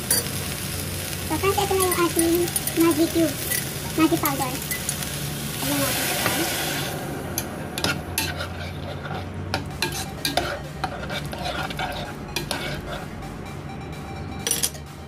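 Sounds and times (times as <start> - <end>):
low sizzle: 0.0 - 13.7
spoon scraping pot: 7.8 - 13.1.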